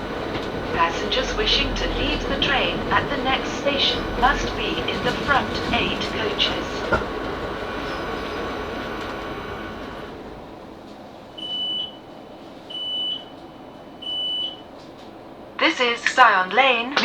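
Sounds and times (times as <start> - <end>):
train motor whine: 0.0 - 12.0
electric train slowing: 0.0 - 17.0.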